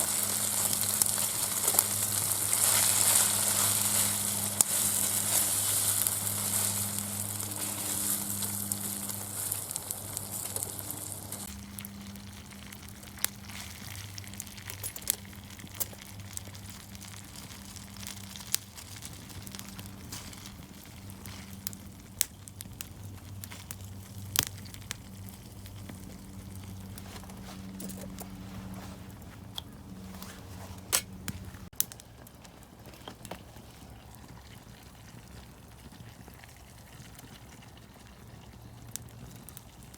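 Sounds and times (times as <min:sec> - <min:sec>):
food sizzling in a frying pan: 0:00.0 - 0:21.7
wood fire crackling and popping: 0:00.0 - 0:39.9.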